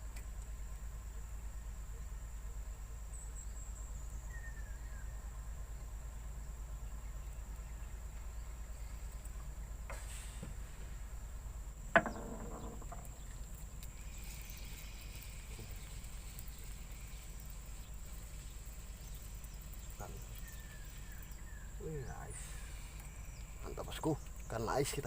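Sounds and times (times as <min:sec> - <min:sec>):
low outdoor rumble: 0:00.0 - 0:25.0
high insect drone: 0:02.5 - 0:25.0
faint clicks: 0:23.0 - 0:24.6.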